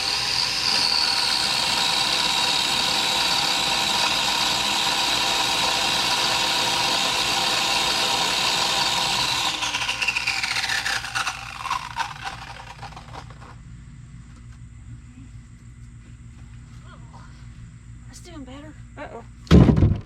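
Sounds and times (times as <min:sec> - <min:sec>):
small chainsaw running: 0:00.0 - 0:13.5.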